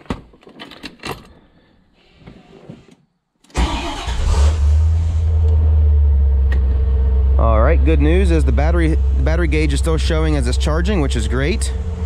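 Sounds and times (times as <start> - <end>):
car engine starting and idling: 3.5 - 12.0.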